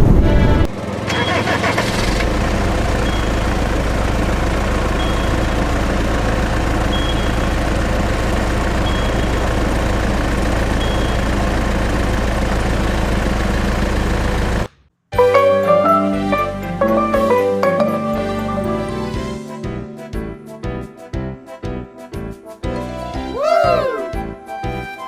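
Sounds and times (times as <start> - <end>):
engine idling with deep hum: 0.0 - 14.7
faint short high beep: 3.0 - 3.6, 5.0 - 5.6, 6.9 - 7.6, 8.8 - 9.4, 10.8 - 11.3.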